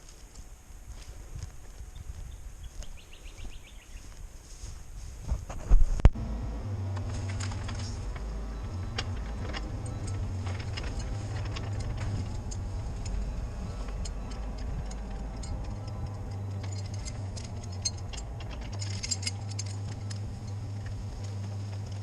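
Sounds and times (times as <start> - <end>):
sharp clicks and rattles: 5.5 - 22.0
diesel engine running: 6.0 - 22.0.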